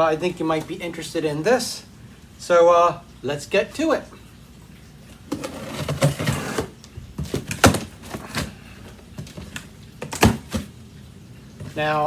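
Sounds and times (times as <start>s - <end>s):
cardboard box rustling scrape: 5.3s - 8.6s.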